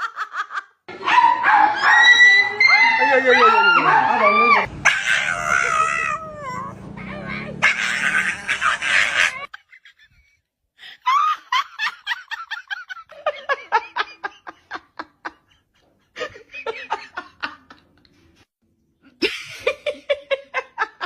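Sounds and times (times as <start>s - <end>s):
person laughing hard: 7.7s - 10.4s, 19.2s - 21.0s.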